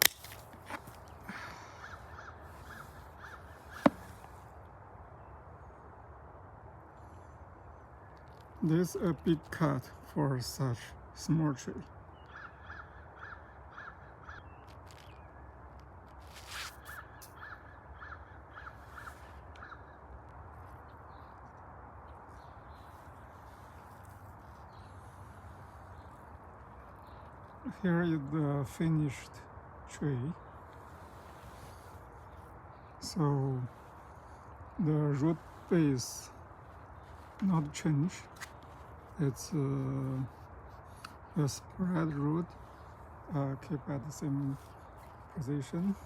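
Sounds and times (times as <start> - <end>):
branch snapping: 0.0 - 1.2
faint background noise: 0.0 - 46.0
crow cawing: 1.3 - 4.2, 12.3 - 14.6, 16.9 - 20.0.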